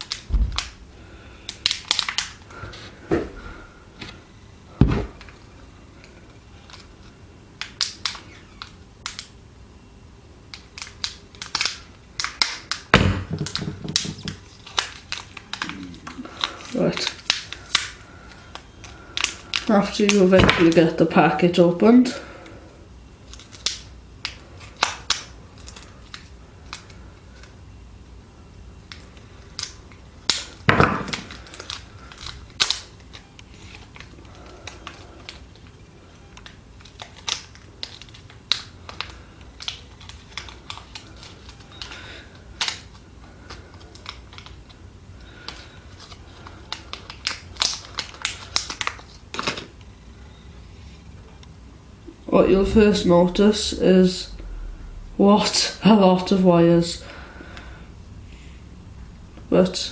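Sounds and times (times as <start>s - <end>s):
plastic packaging crackling: 1.4s - 2.7s, 10.5s - 20.9s, 23.2s - 27.5s, 28.9s - 50.2s.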